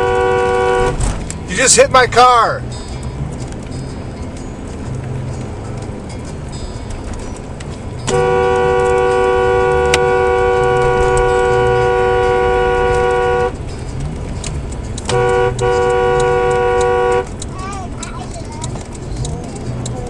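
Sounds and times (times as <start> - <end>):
two-note car horn: 0.0 - 1.0, 8.1 - 13.6, 15.0 - 17.4
engine and road rumble: 0.0 - 20.0.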